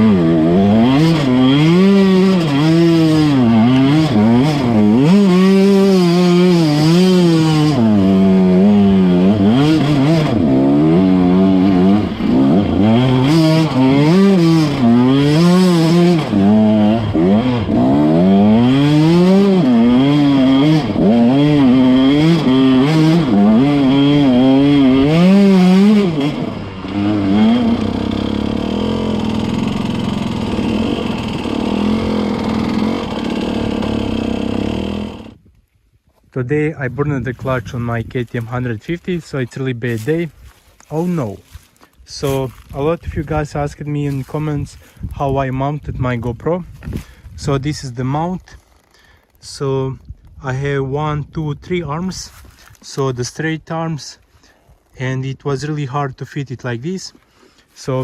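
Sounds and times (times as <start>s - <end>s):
two-stroke dirt bike engine revving: 0.0s - 35.4s.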